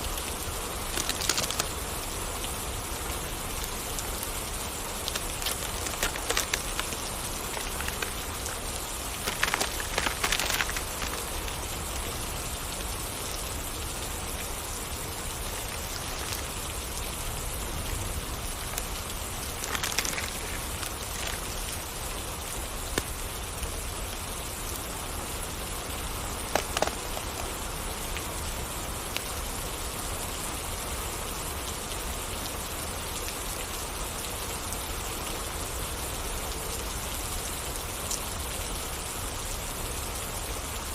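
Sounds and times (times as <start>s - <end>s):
steady rain falling: 0.0s - 40.9s
sharp pops and crackles: 0.9s - 1.9s, 4.8s - 11.8s, 15.6s - 16.6s, 18.6s - 21.9s, 22.7s - 23.4s, 26.2s - 27.8s.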